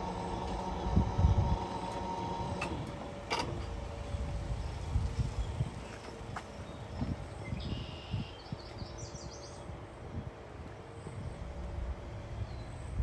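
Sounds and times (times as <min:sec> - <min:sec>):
uneven low rumble: 0:00.0 - 0:06.4.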